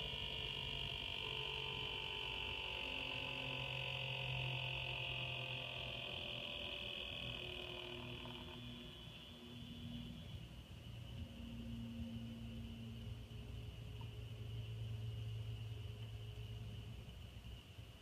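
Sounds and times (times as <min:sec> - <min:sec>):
low hum: 0:00.0 - 0:18.0
water-cooling pump whining: 0:00.0 - 0:18.0.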